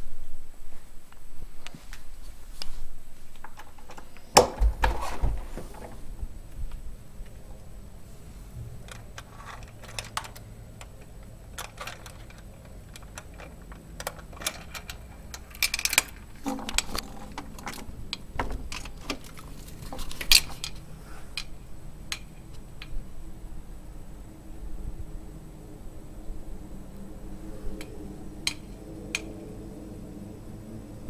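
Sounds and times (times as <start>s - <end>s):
low steady hum: 0.0s - 31.0s
clicks and rattles: 8.8s - 23.0s.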